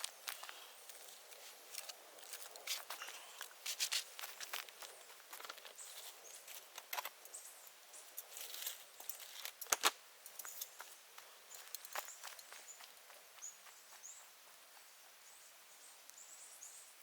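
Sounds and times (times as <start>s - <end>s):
bamboo bonfire crackling: 0.0s - 13.2s.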